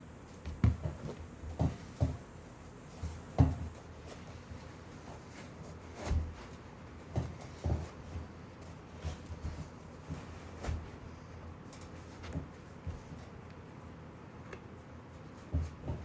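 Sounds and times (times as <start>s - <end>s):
shoes thudding and knocking: 0.3s - 8.4s, 9.0s - 11.1s, 15.5s - 16.0s.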